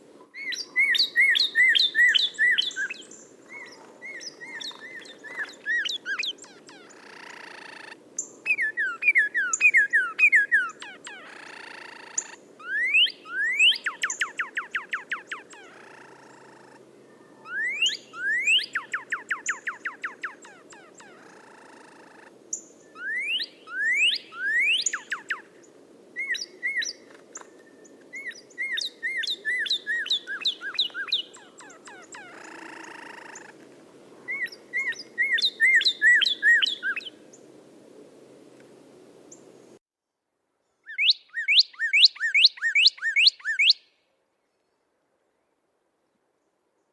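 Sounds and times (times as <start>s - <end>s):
songbird trilling and whistling: 0.4s - 16.5s, 17.4s - 25.5s, 26.2s - 33.5s, 34.3s - 37.1s, 40.9s - 43.9s.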